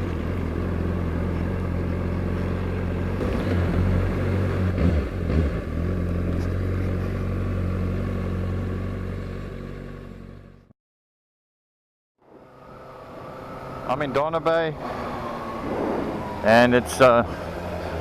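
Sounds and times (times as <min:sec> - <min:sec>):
motorcycle engine running: 0:00.0 - 0:10.7.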